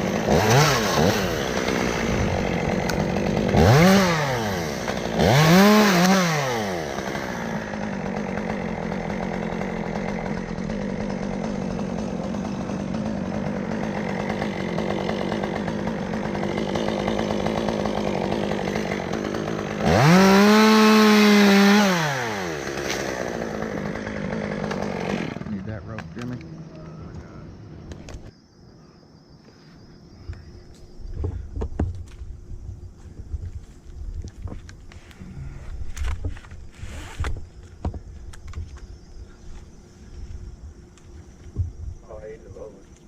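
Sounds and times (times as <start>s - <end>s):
chainsaw revving: 0.0s - 26.4s.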